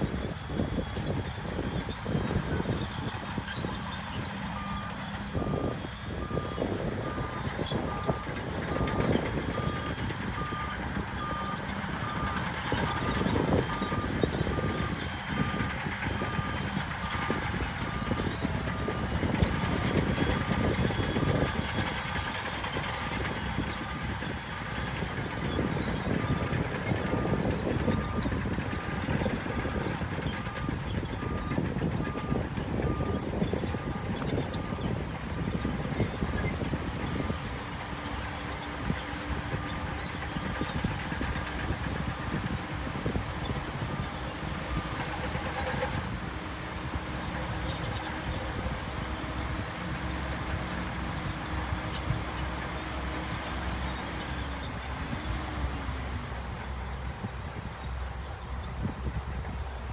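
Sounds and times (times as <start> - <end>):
diesel machinery running: 0.0 - 59.9.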